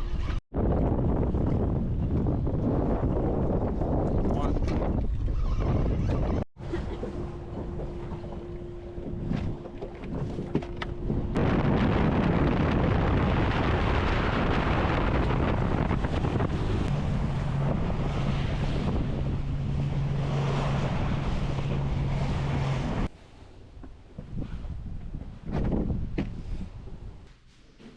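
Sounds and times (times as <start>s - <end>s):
wind buffeting microphone: 0.2s - 23.1s, 24.1s - 27.2s
boat engine hum: 4.8s - 25.3s
water rushing: 7.1s - 23.1s.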